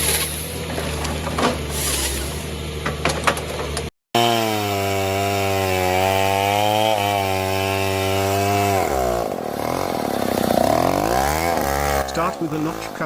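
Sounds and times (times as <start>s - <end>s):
chainsaw engine running: 4.2s - 13.0s.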